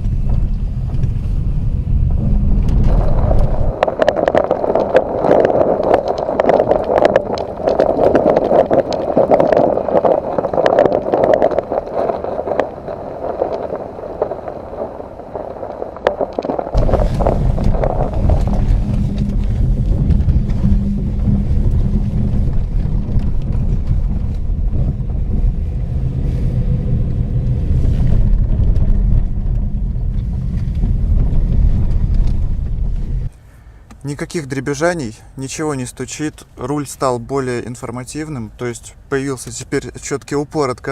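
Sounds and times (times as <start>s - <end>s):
faint small bumps: 0.0s - 34.1s
tyre and road noise: 0.0s - 40.9s
sharp clicks from road surface: 2.5s - 25.9s, 26.5s - 34.1s.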